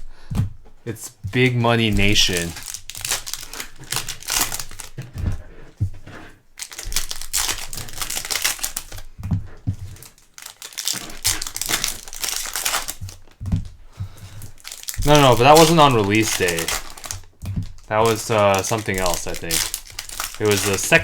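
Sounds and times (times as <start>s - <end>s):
foil wrappers crinkling and tearing: 1.2s - 21.0s
soft thuds on table: 13.4s - 14.4s.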